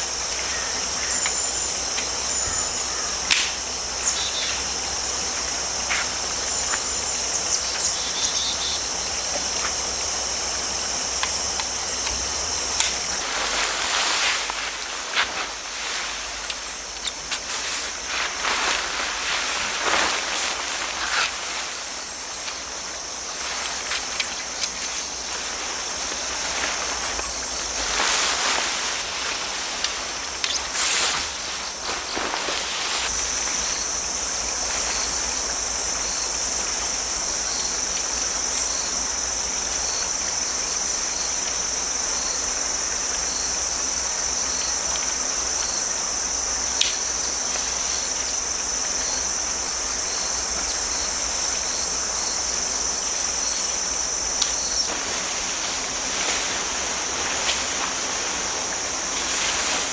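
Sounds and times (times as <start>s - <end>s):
crickets trilling: 0.0s - 59.9s
flowing stream: 46.5s - 59.9s.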